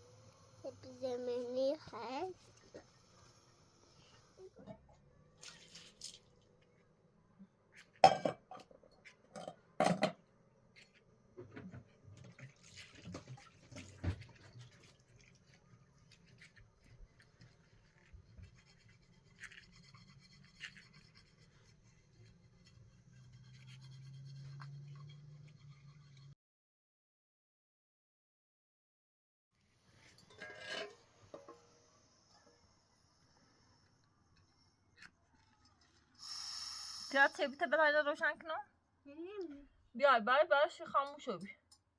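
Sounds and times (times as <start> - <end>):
utensils scraping and knocking: 18.0 - 26.4, 30.0 - 31.7.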